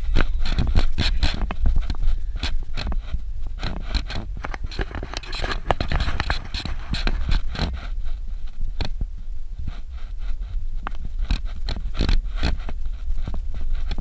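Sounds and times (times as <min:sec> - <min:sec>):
vehicle rumbling on dirt road: 0:00.0 - 0:14.0
knocks and rattles: 0:03.6 - 0:07.8.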